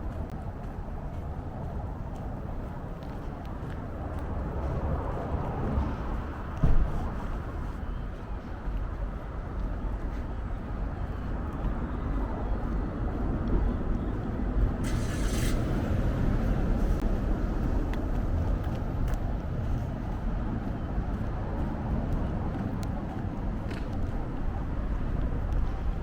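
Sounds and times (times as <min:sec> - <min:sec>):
road traffic: 0:00.0 - 0:26.0
brief hiss: 0:14.8 - 0:15.8.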